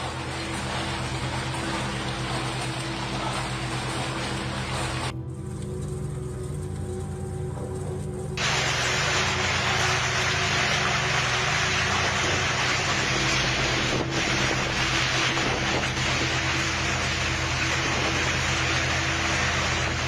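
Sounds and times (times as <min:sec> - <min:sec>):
low droning hum: 0:00.0 - 0:20.0
storm wind and rain: 0:08.4 - 0:20.0.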